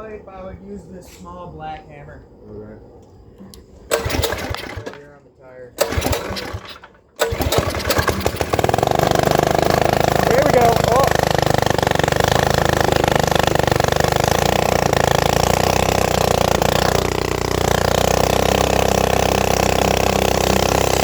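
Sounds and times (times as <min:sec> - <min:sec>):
mini bike engine running: 0:03.9 - 0:05.0, 0:05.8 - 0:21.0.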